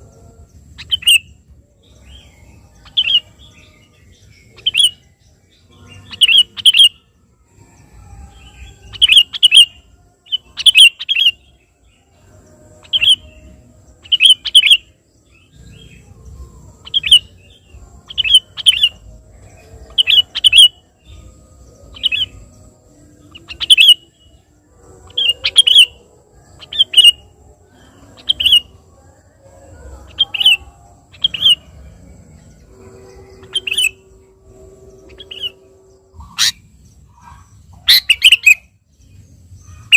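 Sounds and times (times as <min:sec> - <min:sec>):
bulbul chirping: 0:37.2 - 0:38.7.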